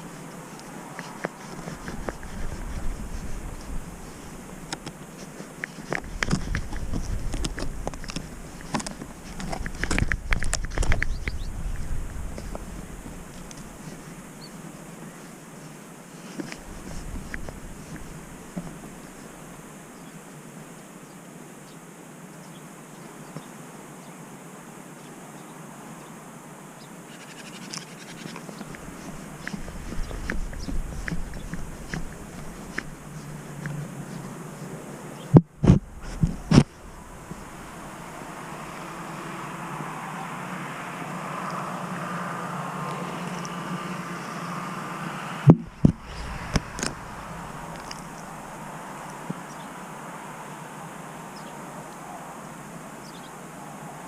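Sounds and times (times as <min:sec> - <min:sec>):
camera scratching on fur: 0:00.0 - 0:19.5, 0:27.1 - 0:34.8, 0:35.6 - 0:39.0, 0:45.5 - 0:48.8
steady hiss: 0:00.0 - 0:54.0
distant vehicle passing: 0:36.8 - 0:50.4.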